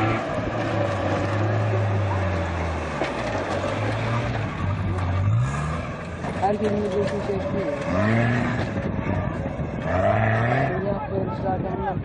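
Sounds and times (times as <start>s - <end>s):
off-road engines racing past: 0.0s - 12.0s.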